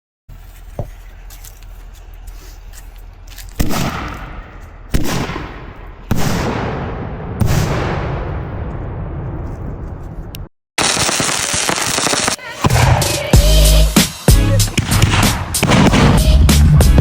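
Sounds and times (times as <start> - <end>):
loud firework bangs with echo: 3.6 - 9.2, 14.8 - 16.7.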